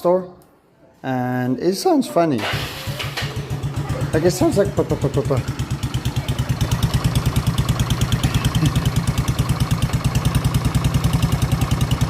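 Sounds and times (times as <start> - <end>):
vehicle engine idling: 2.5 - 12.0.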